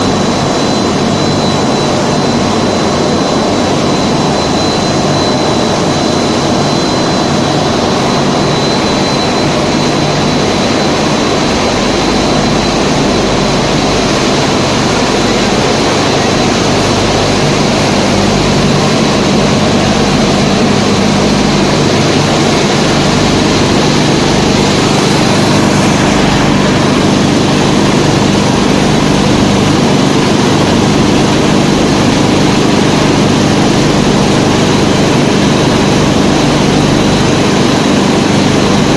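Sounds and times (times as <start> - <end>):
machinery droning: 0.0 - 38.9
thin high whine: 0.0 - 38.9.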